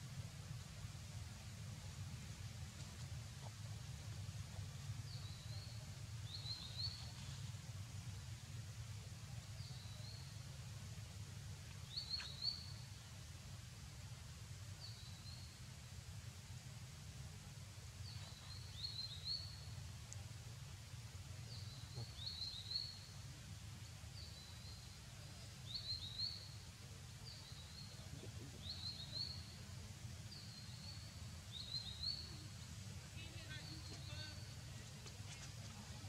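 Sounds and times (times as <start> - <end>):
low background rumble: 0.0 - 36.0
bird singing: 30.3 - 32.6.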